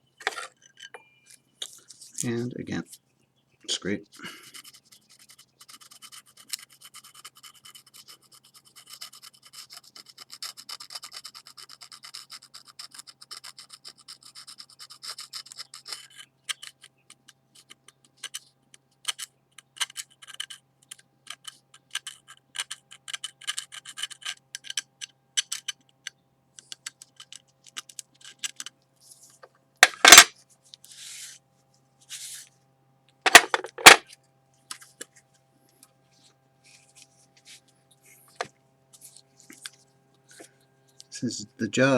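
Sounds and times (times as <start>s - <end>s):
scraping on ceramic plate: 0.2s - 0.9s.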